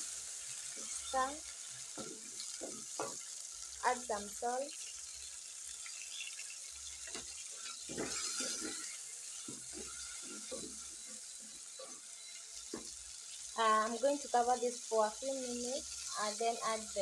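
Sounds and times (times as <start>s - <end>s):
onions and tomatoes sizzling in oil: 0.0s - 17.0s
wooden spoon stirring and scraping: 7.0s - 12.0s.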